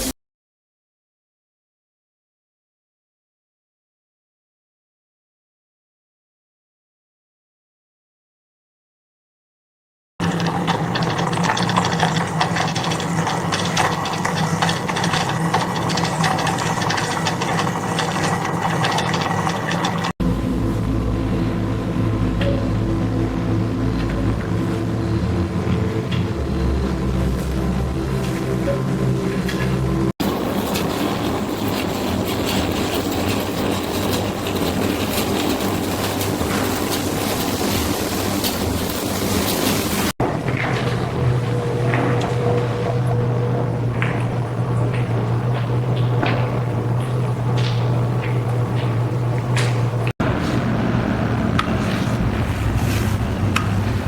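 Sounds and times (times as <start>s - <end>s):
machinery rattling and clicking: 10.2s - 50.8s
deeper machine hum: 10.2s - 54.0s
machine hum: 10.2s - 54.0s.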